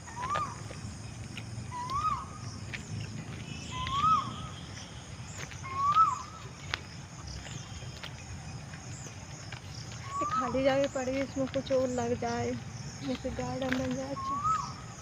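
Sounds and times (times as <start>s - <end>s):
bird calling clear note: 1.7s - 2.4s, 3.6s - 4.8s, 5.6s - 6.4s, 10.0s - 11.0s, 13.9s - 15.0s
faint high bird chirps: 1.7s - 6.6s, 8.9s - 15.0s.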